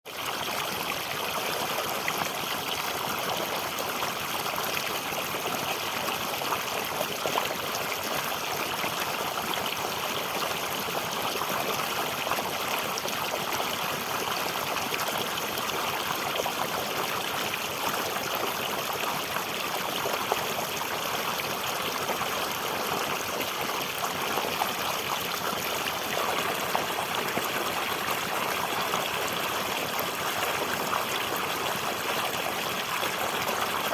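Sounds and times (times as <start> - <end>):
stream water trickling: 0.1 - 33.9.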